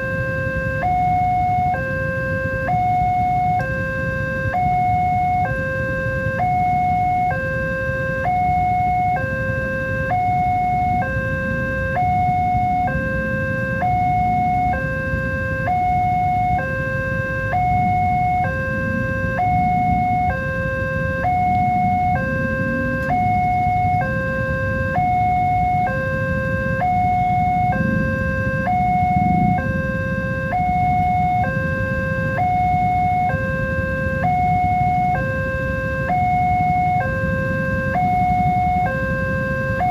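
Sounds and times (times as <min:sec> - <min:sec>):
electronic two-tone warning alarm: 0:00.0 - 0:39.9
low rumble: 0:21.1 - 0:24.0, 0:26.3 - 0:30.3.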